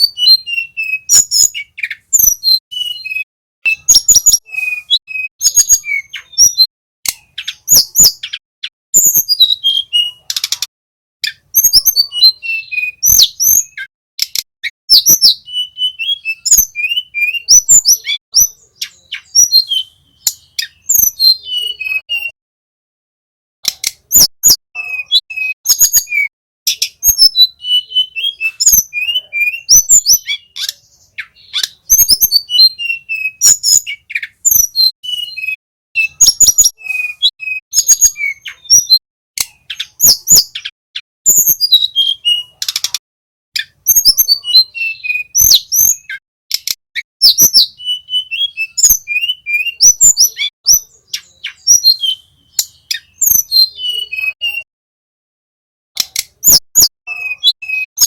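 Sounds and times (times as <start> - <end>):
flycatcher whistling song: 0.0 - 6.7, 11.2 - 13.9, 14.6 - 22.4, 24.1 - 39.0, 43.6 - 54.7
sharp clicks: 14.2 - 14.5, 23.6 - 24.1, 46.5 - 46.8, 56.0 - 56.4.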